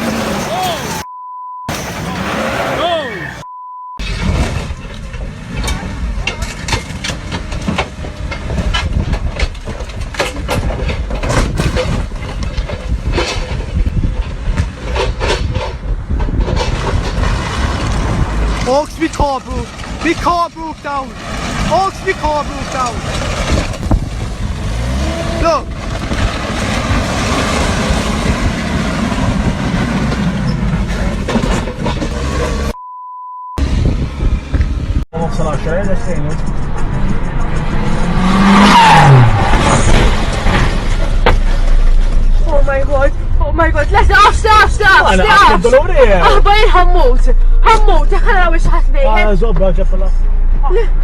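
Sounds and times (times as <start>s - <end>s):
vehicle low rumble: 0.0s - 32.8s, 33.6s - 51.0s
knocks and rattles: 4.0s - 32.7s.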